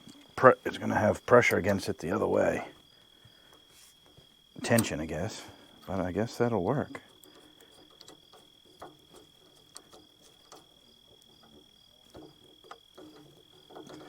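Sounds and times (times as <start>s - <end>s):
hand tools clicking and tapping: 3.5s - 14.0s.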